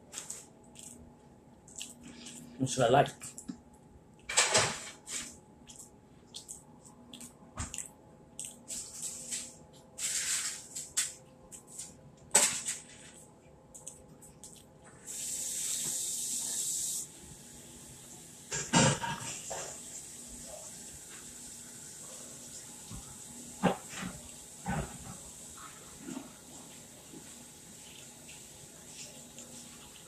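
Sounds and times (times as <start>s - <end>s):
chewing mouth clicks and smacks: 0.2s - 2.5s, 3.2s - 4.3s, 5.6s - 9.1s, 13.2s - 14.8s
steady hiss: 15.0s - 18.7s.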